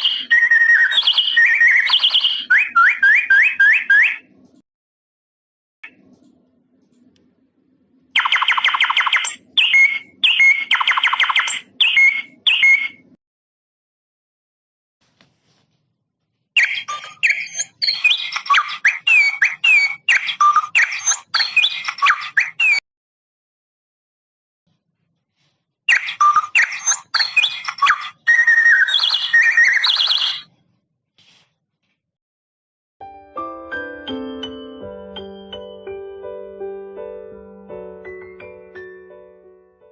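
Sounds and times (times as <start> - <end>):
electronic bird-song doorbell chime: 33.9 - 36.1.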